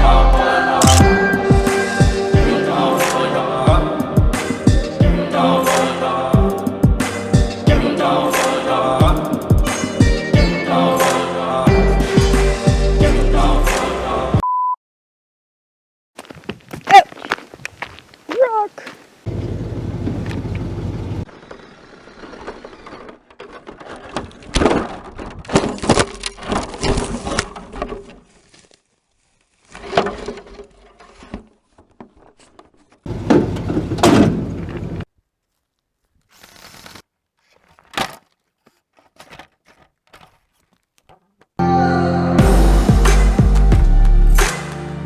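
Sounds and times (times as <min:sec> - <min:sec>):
clattering: 0:37.4 - 0:41.6.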